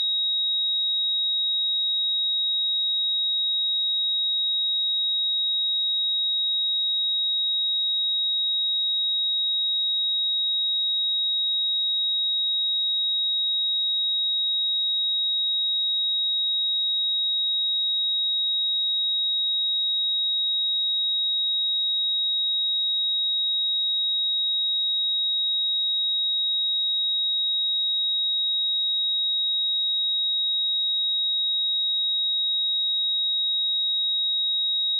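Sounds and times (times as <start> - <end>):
high-pitched sine-wave test tone: 18.7 - 34.9.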